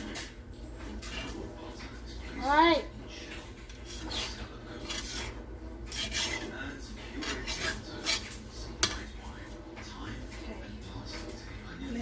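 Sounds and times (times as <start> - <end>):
metal utensil scraping a pot: 3.6 - 9.2.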